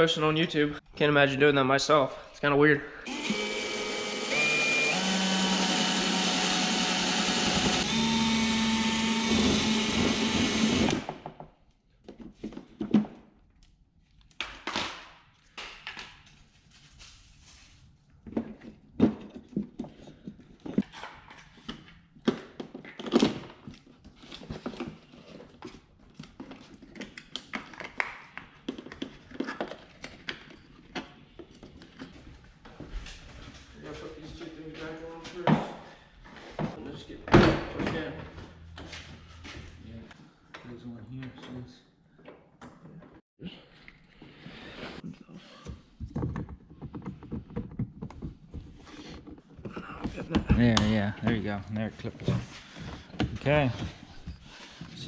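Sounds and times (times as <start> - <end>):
power drill drilling: 3.1 - 11.2.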